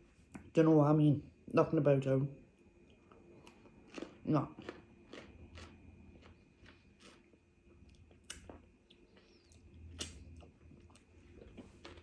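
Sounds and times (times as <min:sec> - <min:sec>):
mouth chewing food: 0:02.9 - 0:12.0.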